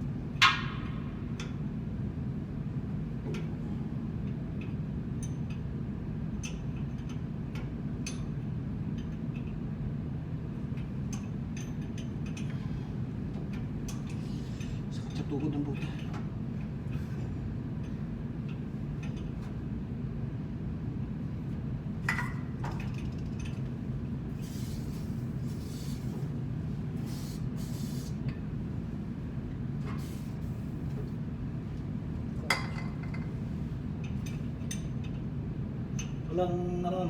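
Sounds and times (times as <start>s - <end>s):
low machinery hum: 0.0s - 37.0s
short hissing: 24.4s - 26.1s, 27.0s - 28.2s.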